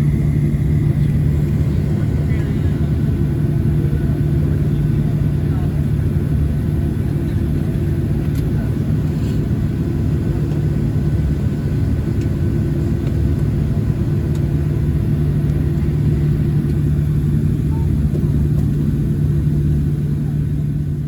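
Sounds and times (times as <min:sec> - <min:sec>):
airplane cabin rumble and hum: 0:00.0 - 0:21.0.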